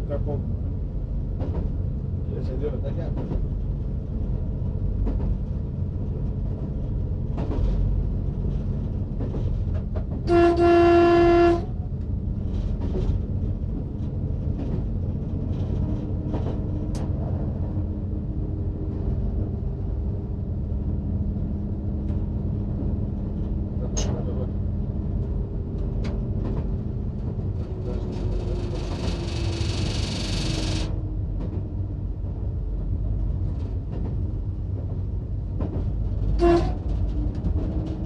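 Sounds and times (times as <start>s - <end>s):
train rumbling at speed: 0.0s - 38.0s
train horn blast: 10.3s - 11.8s, 36.4s - 36.9s.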